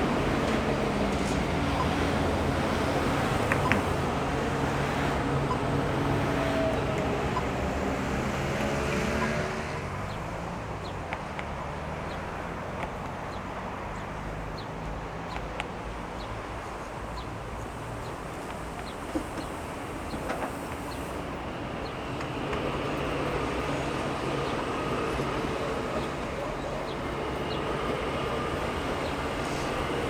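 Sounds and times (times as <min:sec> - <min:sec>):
vehicle passing with whine: 0:00.0 - 0:10.6.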